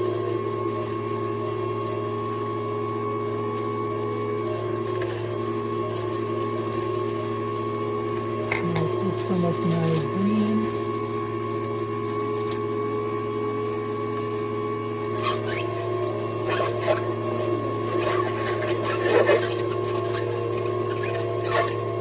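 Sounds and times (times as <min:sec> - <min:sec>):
juicer motor humming: 0:00.0 - 0:22.0.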